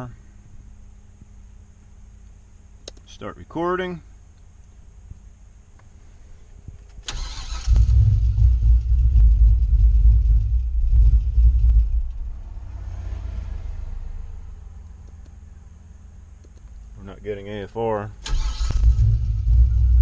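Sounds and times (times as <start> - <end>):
truck engine cranking: 7.0 - 12.1, 18.2 - 19.8
truck engine running and idling: 7.2 - 12.8.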